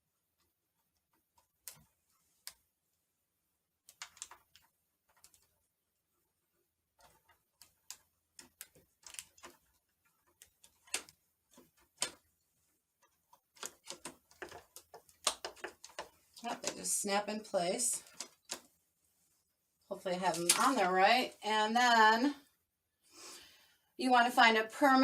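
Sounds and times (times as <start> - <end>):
plastic clicks and rattles: 3.8 - 5.5, 7.0 - 12.2, 13.0 - 16.8, 18.0 - 18.7.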